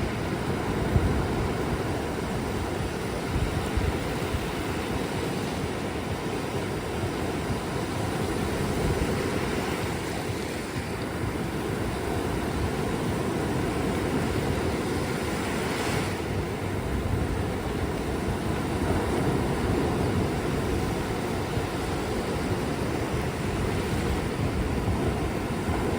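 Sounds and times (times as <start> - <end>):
ocean waves washing on beach: 0.0 - 25.9.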